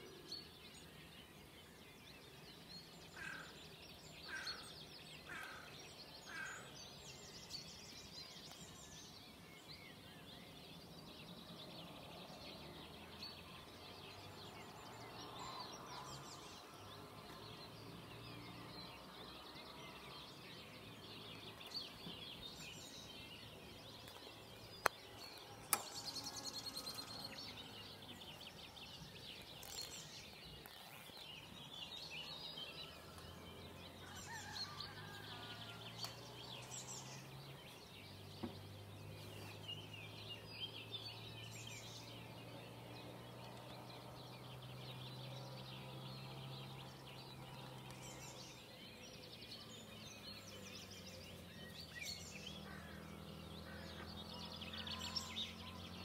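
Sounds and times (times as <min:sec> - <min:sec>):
small birds chirping: 0:00.0 - 0:56.0
sharp clicks: 0:25.6 - 0:26.5.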